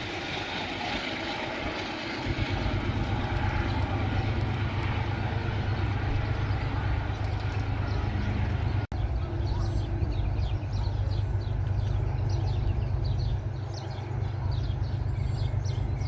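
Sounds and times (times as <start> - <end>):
train wheels rushing on rail: 0.0 - 16.0
deep rumble: 1.7 - 16.0.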